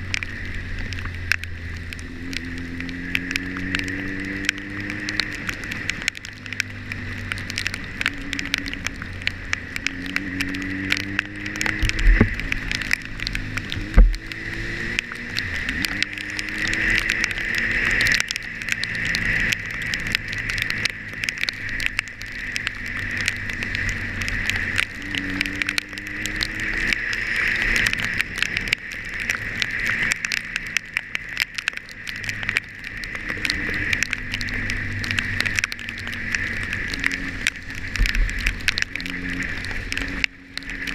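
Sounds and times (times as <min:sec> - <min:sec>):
heavy low thumps from road bumps: 0:00.0 - 0:16.4
motorcycle engine revving: 0:00.0 - 0:40.9
rain ticking on camera: 0:00.0 - 0:40.9
wind and road hiss: 0:00.0 - 0:40.9.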